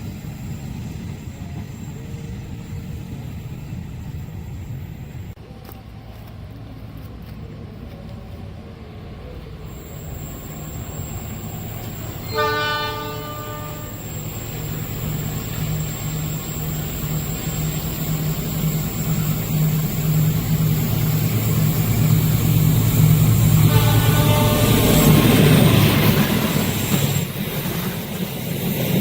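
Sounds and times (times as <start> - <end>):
train rumble: 0.0 - 29.0
train horn blasts: 12.2 - 14.2, 23.5 - 25.2.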